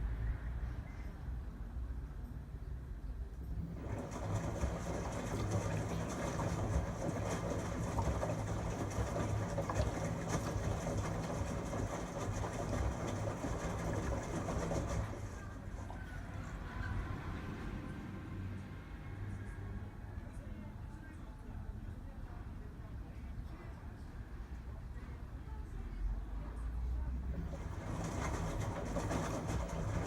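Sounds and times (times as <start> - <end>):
washing machine drum turning: 3.6 - 16.0, 27.3 - 30.0.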